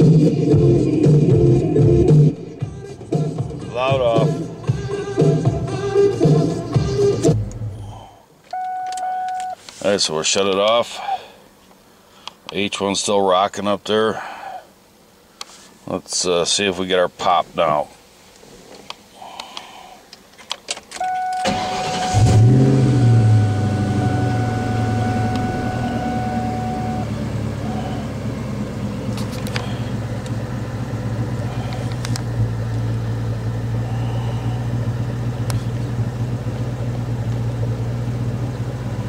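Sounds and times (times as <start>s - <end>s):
car engine starting and idling: 7.0s - 9.5s, 21.0s - 39.0s
steady warning tone: 21.0s - 35.4s.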